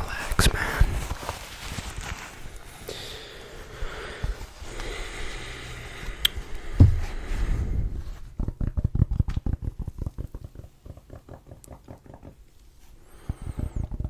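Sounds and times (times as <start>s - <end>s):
rapid tapping on microphone: 6.3s - 14.0s
low thump: 6.7s - 7.8s.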